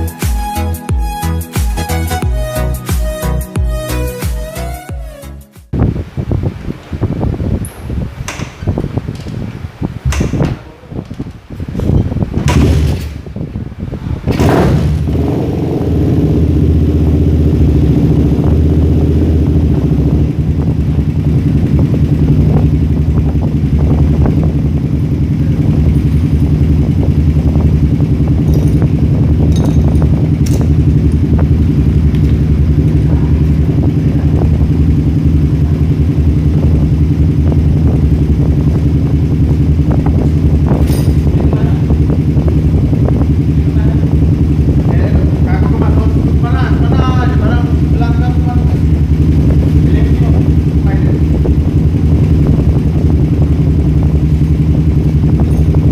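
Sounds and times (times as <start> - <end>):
motorcycle engine idling: 14.7 - 55.9.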